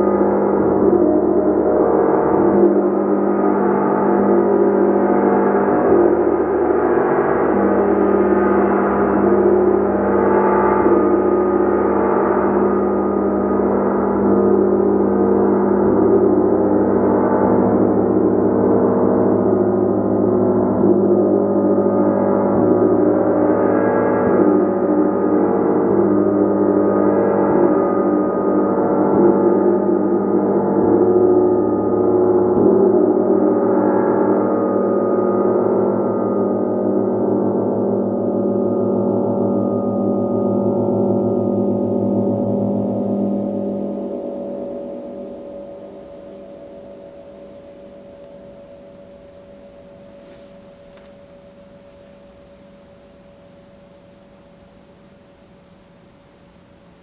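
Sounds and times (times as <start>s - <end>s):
gong ringing: 21.5s - 53.5s.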